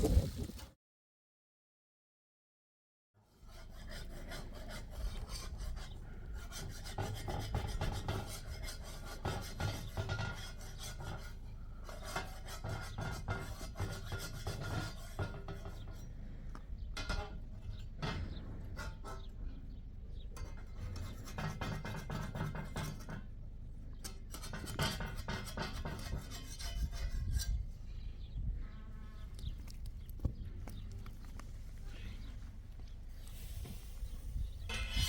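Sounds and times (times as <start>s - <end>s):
rough scraping and rubbing: 0.0s - 0.7s, 3.4s - 16.1s, 20.4s - 23.2s, 24.0s - 27.8s, 30.7s - 35.0s.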